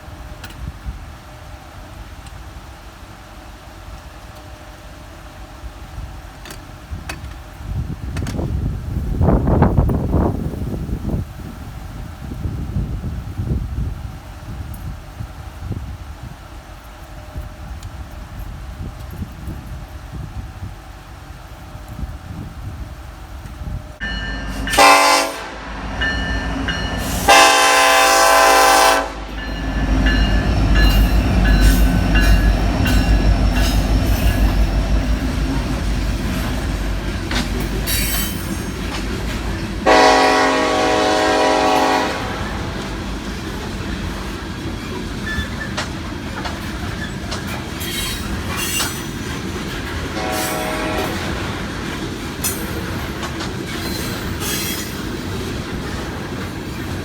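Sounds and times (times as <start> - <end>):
train rumble: 0.0 - 57.0
train air horn blasts: 24.1 - 32.5, 39.8 - 43.0, 50.1 - 51.5
wheel clatter on rails: 29.5 - 39.9, 42.8 - 50.2, 51.2 - 57.0.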